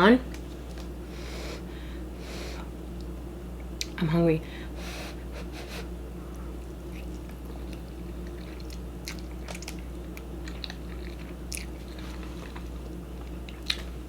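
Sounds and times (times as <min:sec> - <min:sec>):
low electrical hum: 0:00.0 - 0:14.0
chewing noodles: 0:06.6 - 0:14.0.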